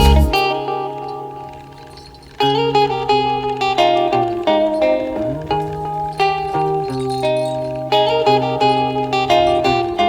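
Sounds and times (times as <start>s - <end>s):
sliding bass line: 0.0s - 0.4s
plucked guitar notes: 0.0s - 10.0s.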